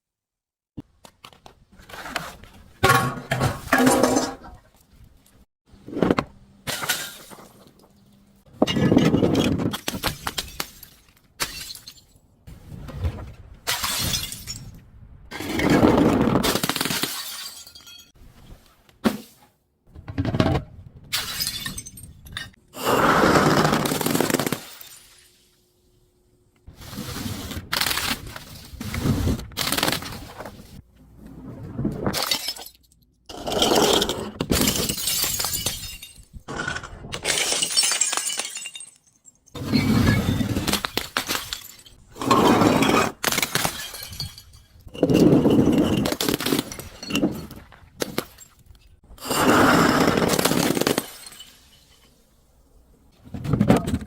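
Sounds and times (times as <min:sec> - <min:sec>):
glass bottles shattering: 0:08.7 - 0:12.2, 0:13.7 - 0:14.8, 0:16.5 - 0:18.2, 0:21.1 - 0:22.6, 0:32.1 - 0:48.6, 0:49.2 - 0:52.2.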